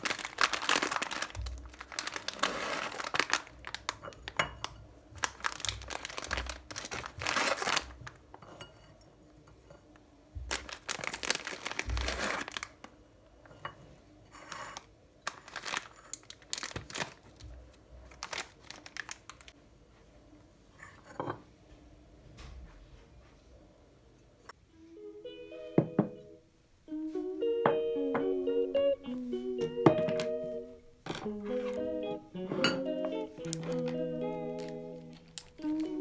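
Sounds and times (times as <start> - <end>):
crinkling and rustling: 0.0 - 8.5, 10.4 - 12.9, 14.4 - 19.6, 31.0 - 36.0.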